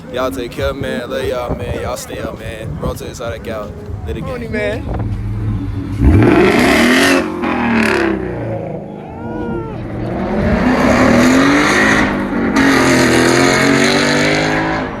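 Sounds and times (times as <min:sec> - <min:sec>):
car engine revving: 0:04.5 - 0:15.0.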